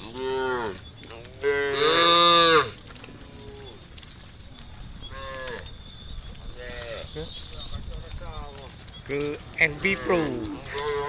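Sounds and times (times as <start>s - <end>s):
cows mooing: 0.0s - 2.8s, 9.1s - 11.0s.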